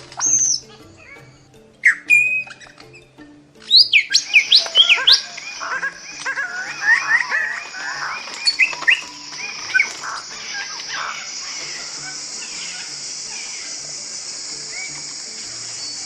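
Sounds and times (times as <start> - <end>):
birds chirping: 0.0 - 16.0
high-pitched hiss: 4.2 - 16.0.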